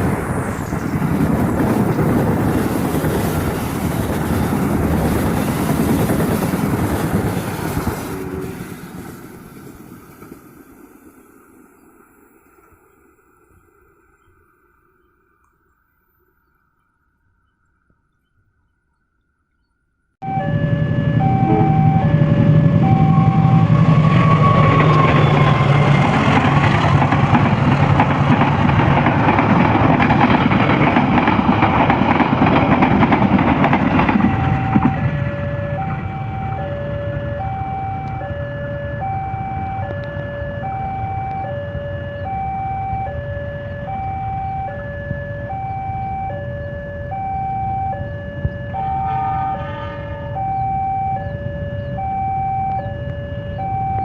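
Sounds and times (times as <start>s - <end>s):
train passing rumble: 0.0s - 16.4s, 20.2s - 54.0s
train horn: 7.8s - 9.0s, 20.2s - 26.3s, 48.7s - 50.9s
level crossing alarm: 20.2s - 26.4s, 34.0s - 54.0s.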